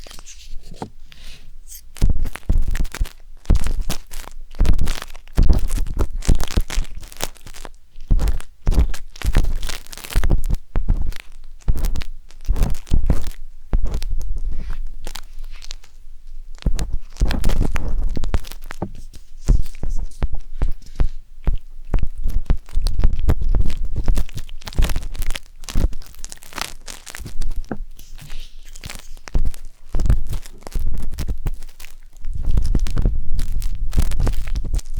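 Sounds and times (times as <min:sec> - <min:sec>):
sticks scraping microphone: 0:00.0 - 0:04.1, 0:16.6 - 0:26.0, 0:26.6 - 0:31.7, 0:32.3 - 0:34.9
soft thuds against microphone: 0:16.7 - 0:20.8.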